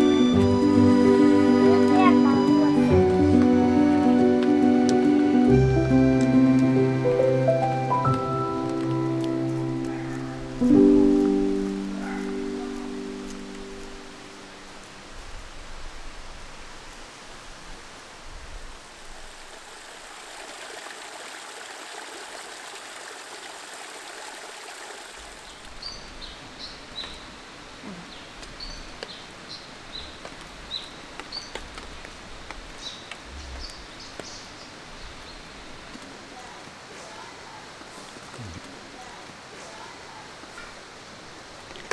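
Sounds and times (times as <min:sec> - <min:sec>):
running water: 0:18.8 - 0:26.1
bird chirping: 0:32.8 - 0:35.7.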